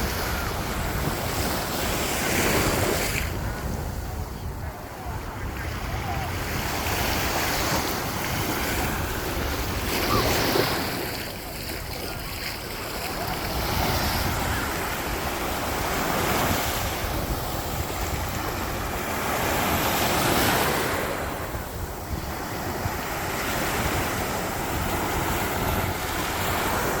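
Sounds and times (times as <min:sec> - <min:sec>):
waves breaking on beach: 0:00.0 - 0:27.0
wind rumbling on microphone: 0:00.0 - 0:27.0.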